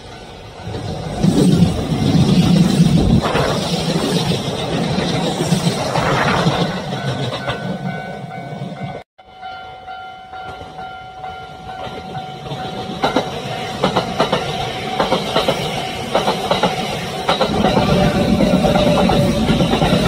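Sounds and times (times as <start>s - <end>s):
train rumbling on track: 0.0s - 9.6s, 10.4s - 20.0s
wheels clattering over rail joints: 11.8s - 20.0s.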